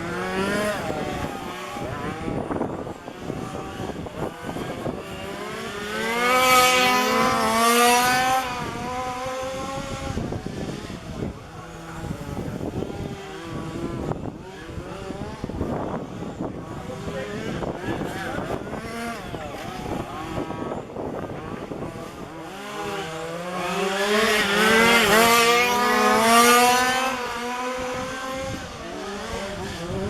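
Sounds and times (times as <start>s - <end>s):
rc car engines revving: 0.0s - 30.0s.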